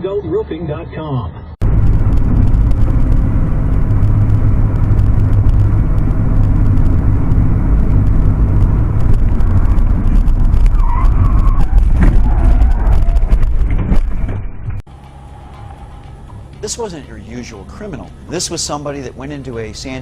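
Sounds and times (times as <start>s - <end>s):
vehicle engine rumble: 0.0s - 20.0s
crackling clicks: 1.6s - 14.8s.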